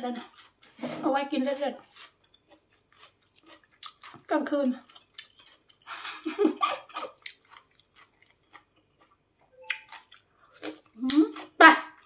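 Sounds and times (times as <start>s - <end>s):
person chewing with wet smacks: 1.8s - 5.9s, 6.9s - 12.0s.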